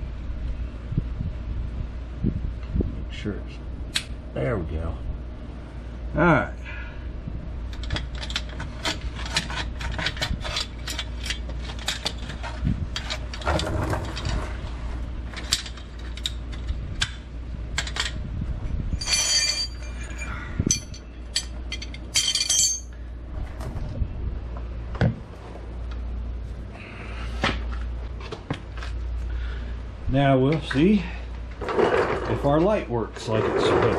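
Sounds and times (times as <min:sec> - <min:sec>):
metal tools clinking and clicking: 0:07.7 - 0:12.4, 0:19.0 - 0:23.0
scraping rustles: 0:08.2 - 0:16.8, 0:31.4 - 0:33.9.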